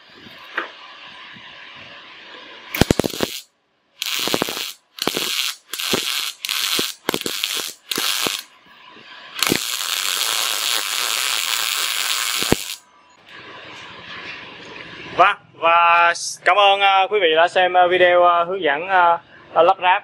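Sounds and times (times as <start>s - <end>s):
welding arc crackling: 2.7s - 8.5s, 9.4s - 12.8s.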